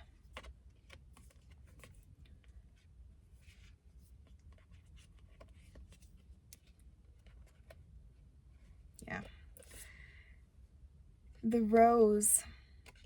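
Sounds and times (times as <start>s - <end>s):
soft rustle: 0.0s - 10.0s.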